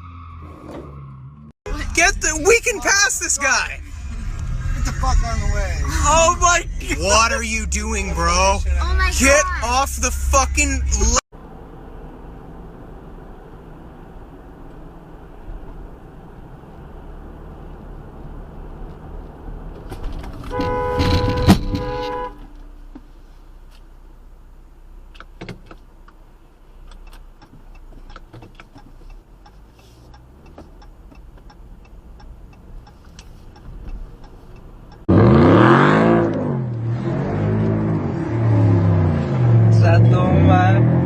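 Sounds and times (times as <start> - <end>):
car road noise: 0.0 - 41.0
car horn blaring: 20.4 - 22.7.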